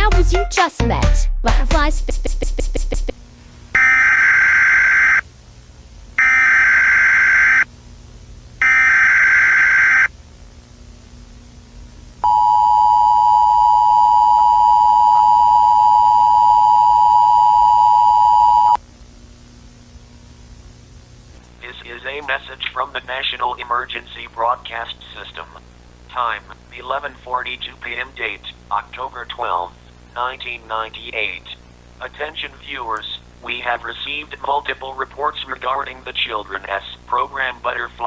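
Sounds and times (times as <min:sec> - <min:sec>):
screeching data tone bursts: 0:03.8 - 0:05.2, 0:06.2 - 0:07.7, 0:08.6 - 0:10.1
two-tone attention signal: 0:12.2 - 0:18.8.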